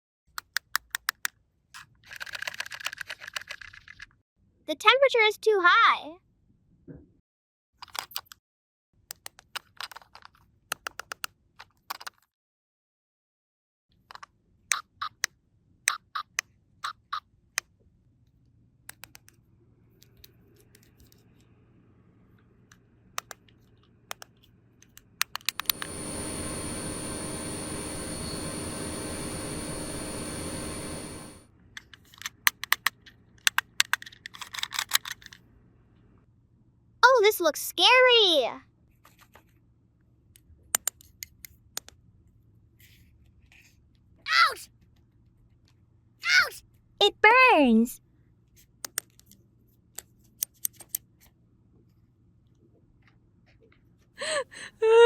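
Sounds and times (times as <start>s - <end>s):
plastic toy pieces clicking: 0.4s - 4.2s, 9.1s - 12.3s, 31.8s - 35.4s.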